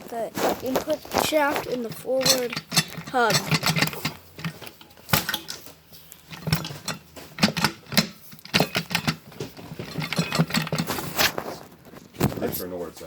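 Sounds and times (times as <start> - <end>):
metallic clinks and knocks: 1.4 - 11.0.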